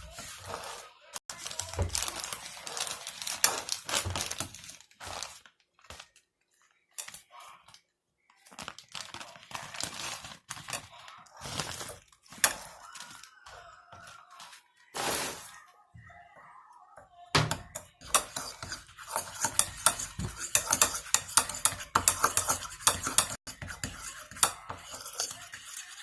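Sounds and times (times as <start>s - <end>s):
crinkling and crackling handling noises: 1.3s - 14.9s.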